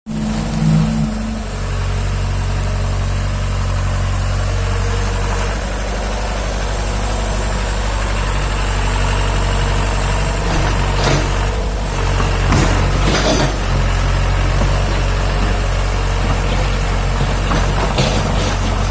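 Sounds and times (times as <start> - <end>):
excavator engine running: 0.1 - 18.9.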